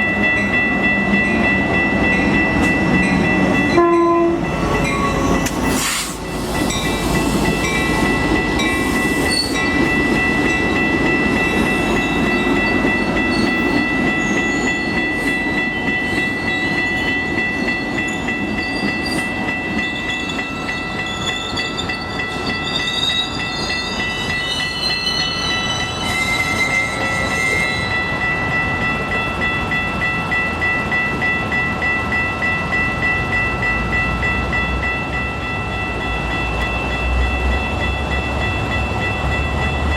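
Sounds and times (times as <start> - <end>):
train rumbling past: 0.0 - 39.9
wavering squeals: 3.6 - 9.9, 20.0 - 28.3.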